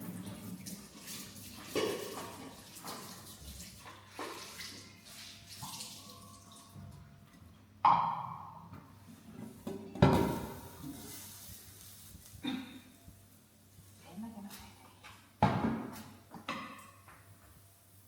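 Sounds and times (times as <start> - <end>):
water splashing and dripping: 0.0 - 6.8.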